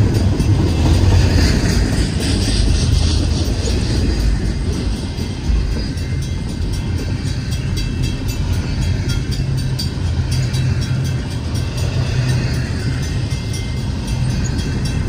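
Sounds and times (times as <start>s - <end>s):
crossing bell ringing: 0.0s - 15.0s
train wheels rumbling on rails: 0.0s - 15.0s.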